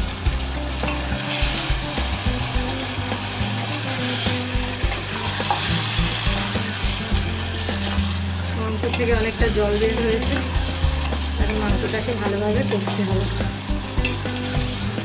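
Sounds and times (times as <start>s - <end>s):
chicken sizzling in a pot: 0.0s - 15.0s.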